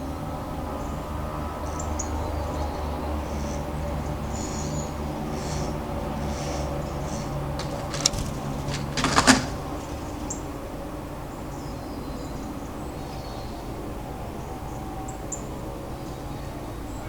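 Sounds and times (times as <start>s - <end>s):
sharp knocks: 7.6s - 10.3s
short clatter: 7.6s - 10.5s.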